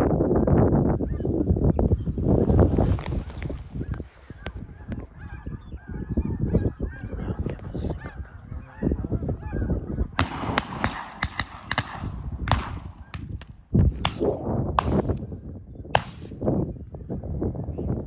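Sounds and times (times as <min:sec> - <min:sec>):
snow geese honking: 0:03.7 - 0:10.2.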